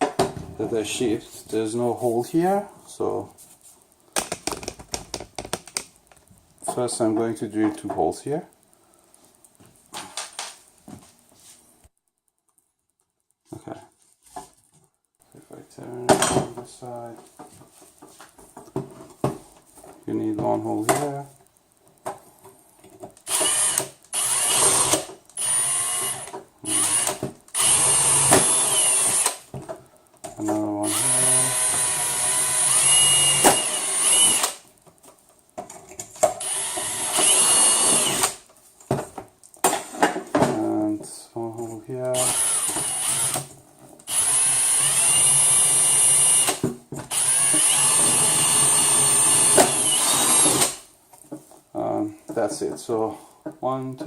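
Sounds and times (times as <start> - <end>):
power drill boring short bursts: 23.3 - 29.4, 30.9 - 34.6, 36.4 - 38.4, 42.2 - 43.4, 44.1 - 50.8.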